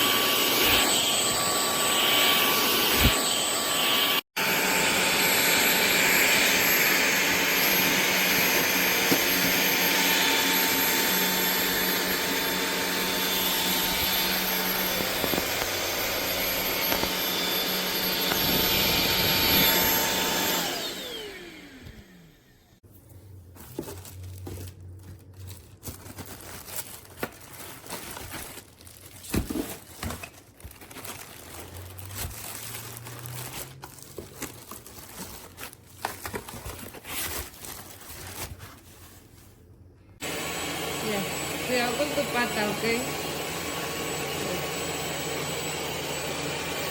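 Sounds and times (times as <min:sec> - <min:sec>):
stick vacuum motor whine: 0:00.0 - 0:22.8, 0:40.2 - 0:46.9.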